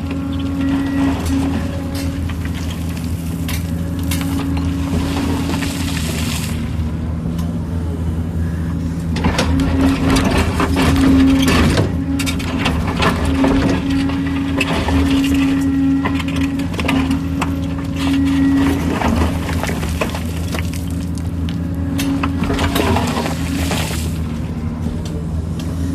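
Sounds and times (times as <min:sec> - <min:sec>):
excavator diesel engine: 0:00.0 - 0:25.9
rock knocking and scraping: 0:19.2 - 0:21.7.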